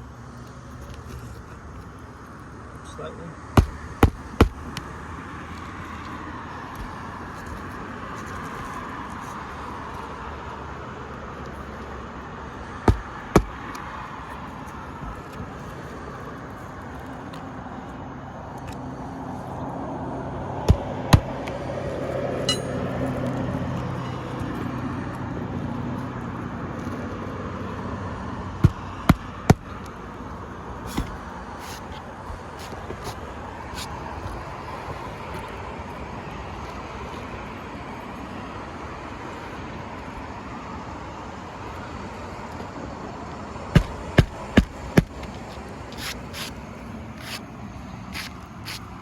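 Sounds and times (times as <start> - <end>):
hand tools tapping roof nails: 3.6 - 4.8, 12.9 - 13.8, 43.8 - 45.3.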